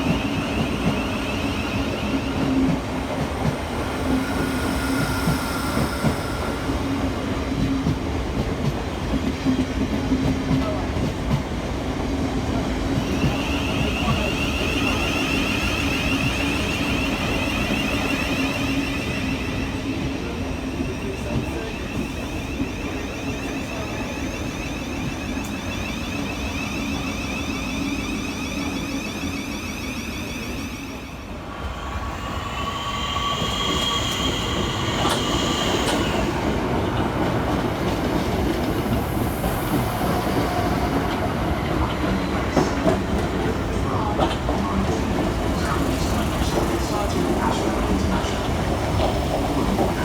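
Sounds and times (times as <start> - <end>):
electric train whine: 0.0 - 50.0
high squeal of train: 0.0 - 50.0
wheels rumbling on track: 31.4 - 50.0.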